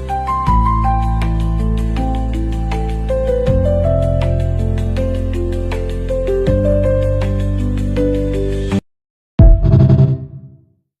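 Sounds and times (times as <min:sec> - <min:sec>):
deep cinematic impact hit: 0:09.4 - 0:10.6.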